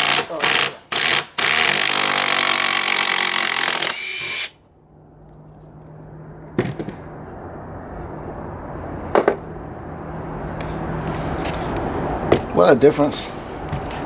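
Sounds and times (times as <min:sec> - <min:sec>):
impact driver hammering: 0:00.0 - 0:04.5
sharp knocks: 0:06.6 - 0:07.1.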